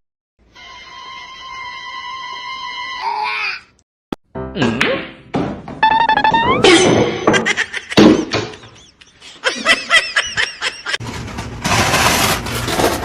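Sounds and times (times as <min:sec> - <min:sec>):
person laughing: 0:06.2 - 0:11.0.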